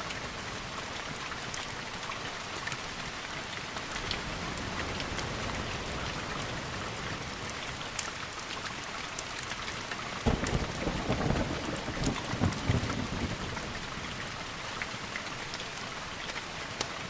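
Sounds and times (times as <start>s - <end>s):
sharp raindrop ticks: 0.0s - 17.0s
steady rainfall: 0.0s - 17.0s
deep rolling thunder: 10.2s - 13.9s.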